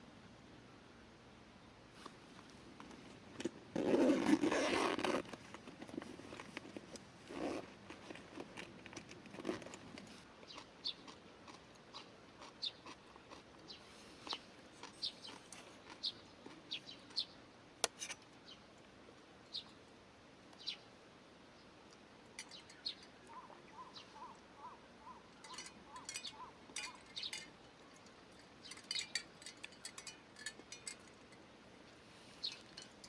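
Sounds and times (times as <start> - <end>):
birds chirping: 10.4 - 11.2, 12.0 - 13.0, 13.7 - 17.4, 19.5 - 19.8, 20.6 - 20.9, 22.4 - 31.0, 32.4 - 32.9.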